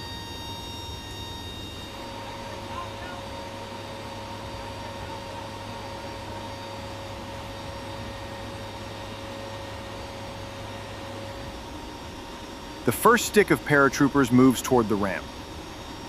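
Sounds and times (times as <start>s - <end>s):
steady whining tones: 0.0s - 16.0s.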